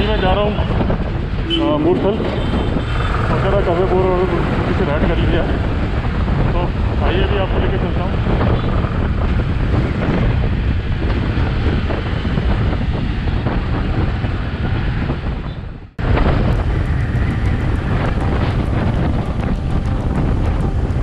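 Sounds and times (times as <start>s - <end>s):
wind buffeting microphone: 0.0s - 21.0s
motorcycle engine running: 16.0s - 21.0s.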